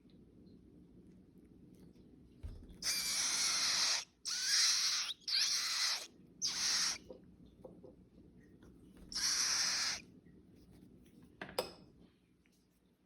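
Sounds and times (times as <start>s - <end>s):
baby bird hissing begging calls: 2.8s - 7.0s, 9.1s - 10.0s.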